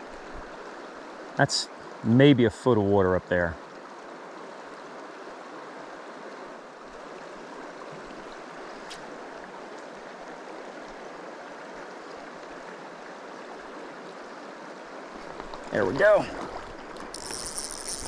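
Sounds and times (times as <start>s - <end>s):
stream rushing over rocks: 4.0s - 18.0s.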